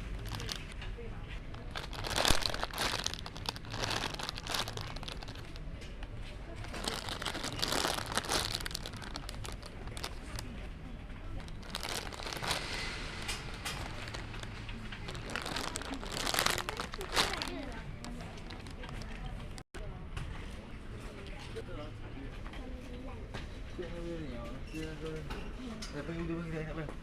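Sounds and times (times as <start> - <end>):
plastic packaging crinkling: 0.0 - 0.8, 1.5 - 10.5, 11.4 - 19.6.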